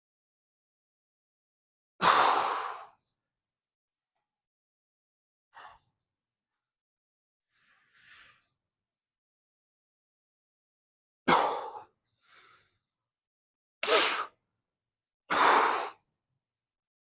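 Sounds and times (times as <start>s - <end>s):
person exhaling forcefully: 13.8s - 14.3s.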